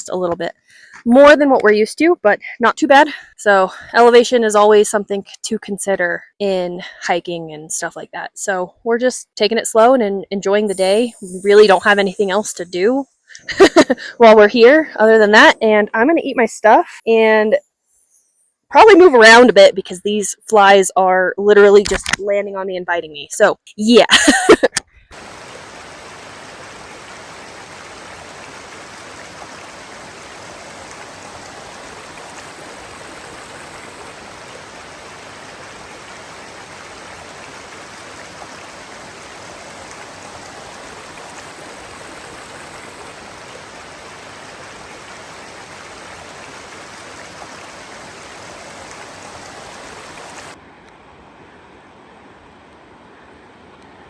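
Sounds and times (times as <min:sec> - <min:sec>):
creek water rushing: 0:25.1 - 0:50.6.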